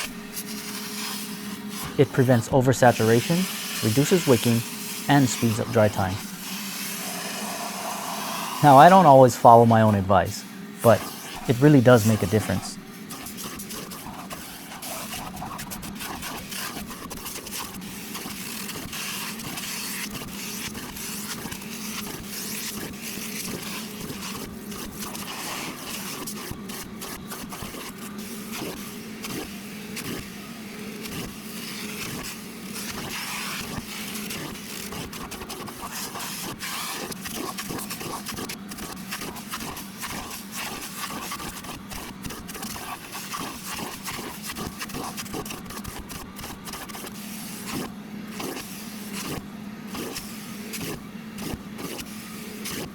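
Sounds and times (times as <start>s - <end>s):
vacuum wand sucking water from fabric: 0.0s - 2.2s, 3.2s - 8.8s, 10.8s - 11.5s, 12.4s - 52.9s
shop vacuum humming: 0.0s - 34.8s.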